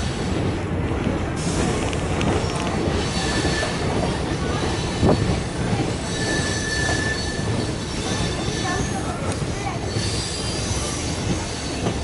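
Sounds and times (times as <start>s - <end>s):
train wheels rumbling on track: 0.0s - 12.0s
high wheel squeal: 3.0s - 3.8s, 6.0s - 9.2s, 9.8s - 11.8s.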